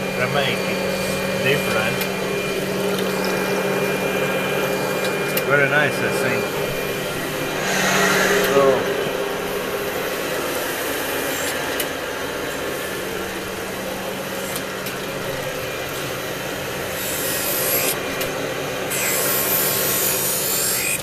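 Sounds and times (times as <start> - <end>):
grinding wheel hissing on steel: 0.0 - 21.0
motor hum: 0.0 - 21.0.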